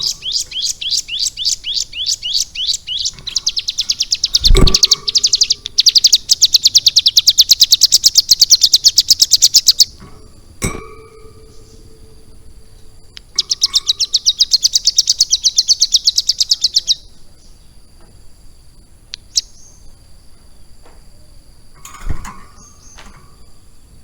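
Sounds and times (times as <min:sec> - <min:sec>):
bird chirps: 0:00.0 - 0:17.8, 0:19.2 - 0:24.0
bird singing fast trill: 0:00.0 - 0:17.8, 0:19.2 - 0:20.0, 0:21.8 - 0:24.0.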